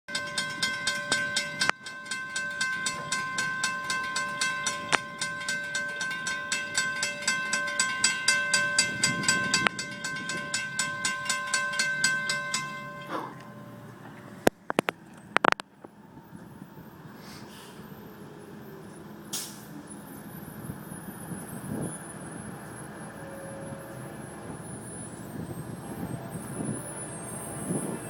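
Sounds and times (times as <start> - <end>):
train rumbling past: 0.1 - 14.7, 15.9 - 28.0
locomotive air horn: 23.1 - 24.3.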